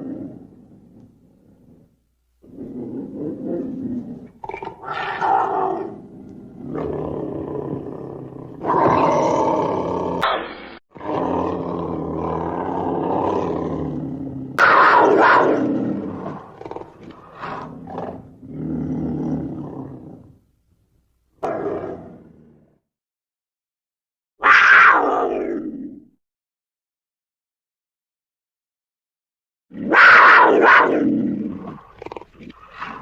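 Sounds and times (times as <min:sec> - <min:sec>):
panther growling and roaring: 0:00.0 - 0:10.2, 0:10.9 - 0:20.4, 0:29.7 - 0:33.0.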